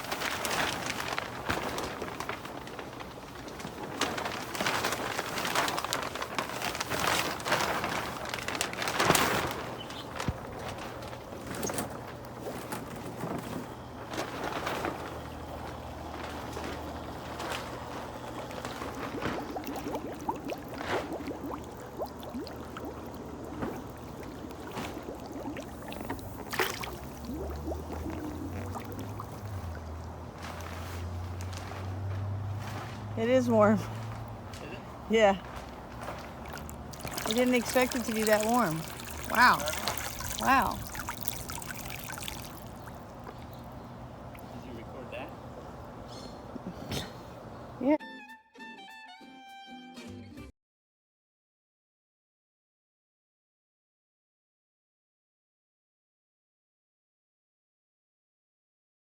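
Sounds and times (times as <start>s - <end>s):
water gurgling and splashing: 15.1s - 31.4s, 35.8s - 44.6s.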